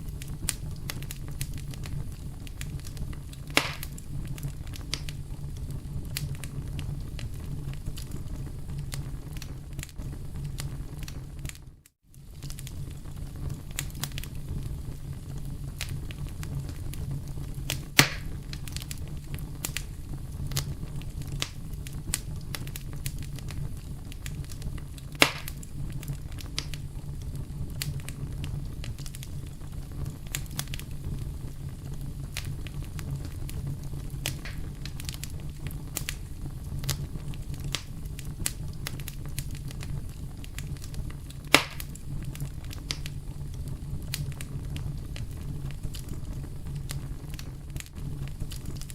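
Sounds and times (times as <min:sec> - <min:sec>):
loud pops from burning wood: 0:00.0 - 0:48.9
wood fire crackling: 0:00.0 - 0:48.9.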